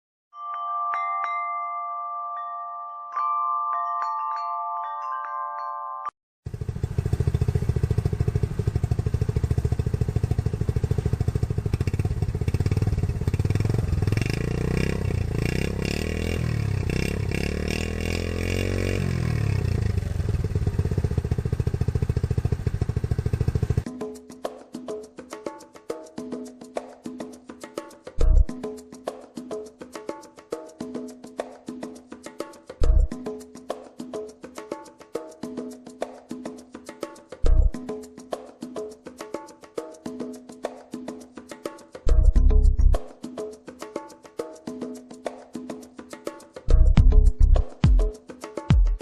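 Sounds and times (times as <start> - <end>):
ringing chime jingle: 0.3 - 6.2
motorcycle engine revving: 6.5 - 23.9.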